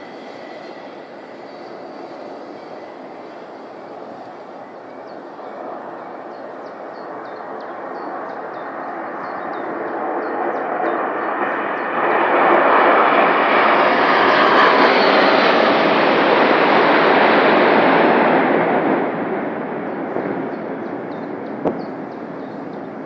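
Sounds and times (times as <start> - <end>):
military aircraft engines roaring: 0.0 - 23.0.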